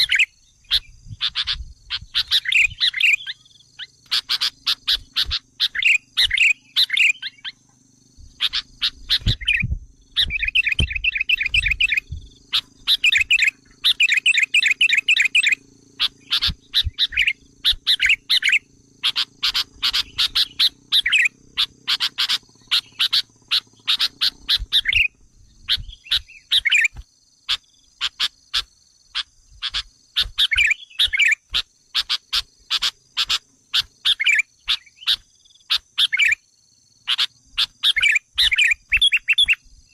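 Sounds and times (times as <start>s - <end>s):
bird calls: 0.0s - 39.9s
high insect drone: 0.0s - 39.9s
low rumbles: 8.2s - 13.8s.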